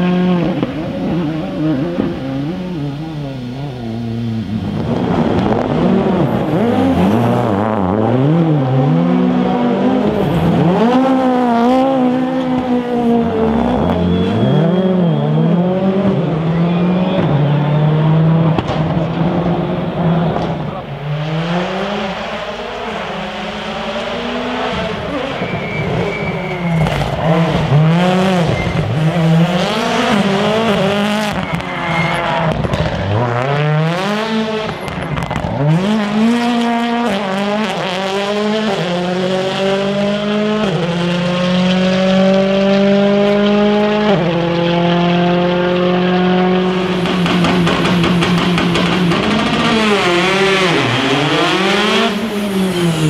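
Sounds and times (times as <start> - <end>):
rally car engine revving: 0.0 - 53.0
exhaust crackle: 46.7 - 53.0.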